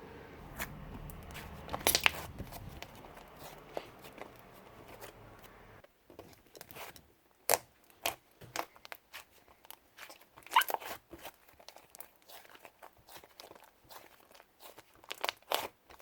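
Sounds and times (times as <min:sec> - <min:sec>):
slime squeezed by hand: 0:10.0 - 0:15.7.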